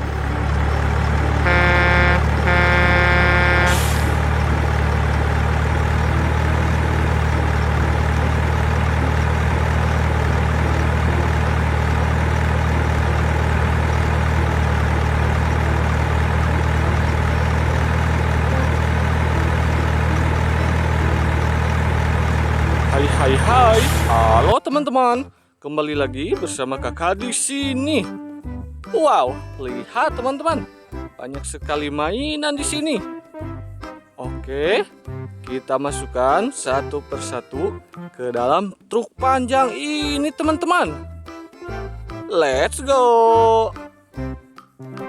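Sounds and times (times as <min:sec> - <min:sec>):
truck engine idling: 0:00.0 - 0:24.6
truck air horn blasts: 0:01.4 - 0:04.5.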